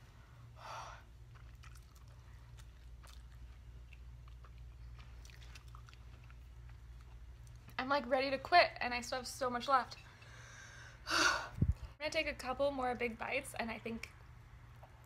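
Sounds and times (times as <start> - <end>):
low steady hum: 0.0 - 15.0
wet mouth clicks chewing: 1.3 - 7.8.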